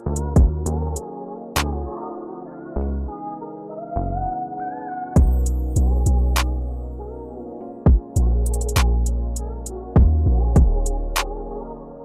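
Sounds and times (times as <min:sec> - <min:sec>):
synth tones with melody: 0:00.0 - 0:12.0
heavy bass drum beats: 0:00.2 - 0:00.6, 0:05.2 - 0:06.2, 0:07.9 - 0:08.9, 0:10.0 - 0:10.8.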